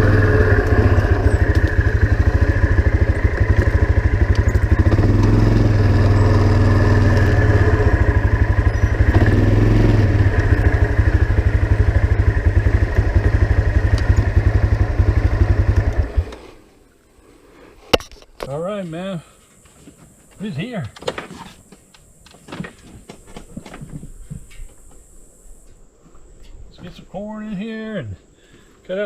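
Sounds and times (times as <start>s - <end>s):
vehicle engine pulsing: 0.0s - 16.3s.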